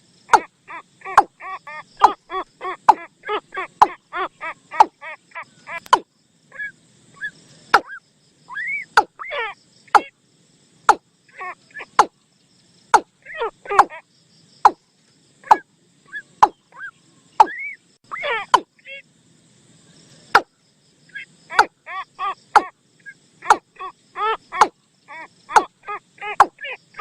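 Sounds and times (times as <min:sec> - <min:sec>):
sharp clicks: 0:05.8 - 0:06.0.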